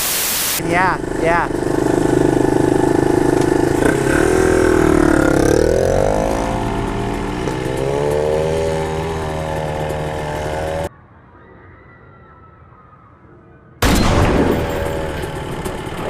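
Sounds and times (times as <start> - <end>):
dirt bike engine running: 0.6 - 10.9, 14.4 - 16.0.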